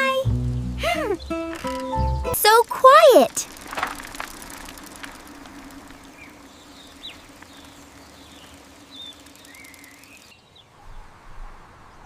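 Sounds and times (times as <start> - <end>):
low steady hum: 2.3 - 10.4
bird warbling call: 3.4 - 11.1.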